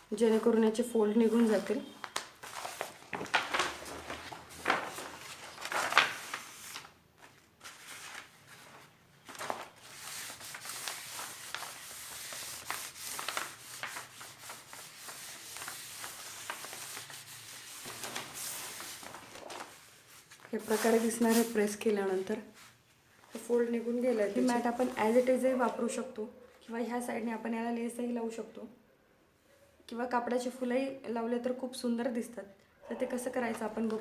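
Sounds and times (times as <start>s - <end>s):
plastic sheet rubbing: 1.2s - 6.9s, 7.7s - 21.8s, 24.1s - 25.6s
plastic sheet crinkling: 1.2s - 22.7s, 23.3s - 25.8s.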